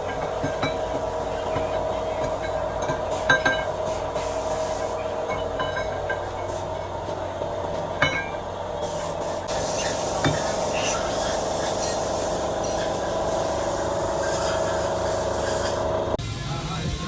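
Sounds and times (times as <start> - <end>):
machine hum: 0.0 - 16.3
hiss: 3.1 - 5.2, 8.8 - 16.2.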